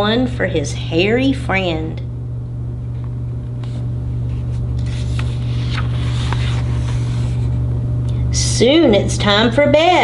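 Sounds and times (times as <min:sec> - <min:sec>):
steady low hum: 0:00.0 - 0:10.0
book page turning: 0:03.6 - 0:07.6.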